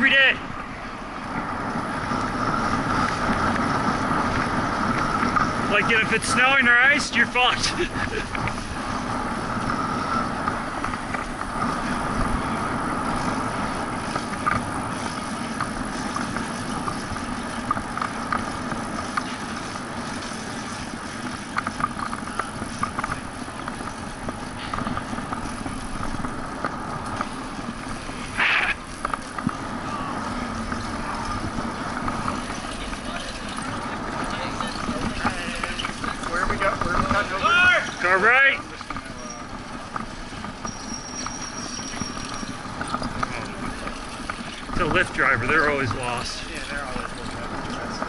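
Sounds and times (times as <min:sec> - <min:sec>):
bicycle road and wind noise: 0:00.0 - 0:48.0
small clicks and rattles: 0:07.2 - 0:48.0.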